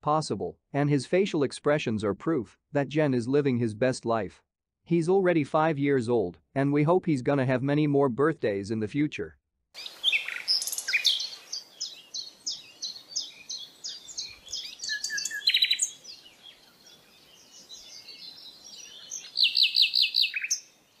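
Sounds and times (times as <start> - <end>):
bird chirping: 9.8 - 21.0.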